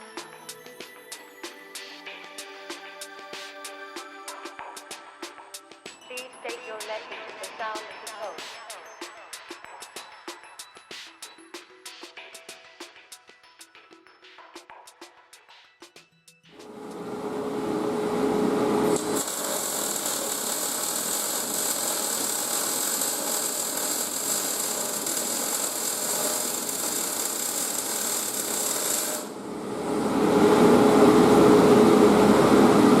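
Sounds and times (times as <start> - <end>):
welding hiss: 18.8 - 29.4.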